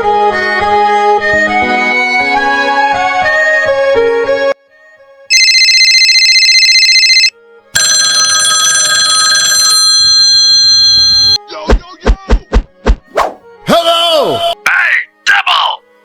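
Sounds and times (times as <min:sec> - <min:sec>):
electronic phone ringtone: 0:05.3 - 0:11.4.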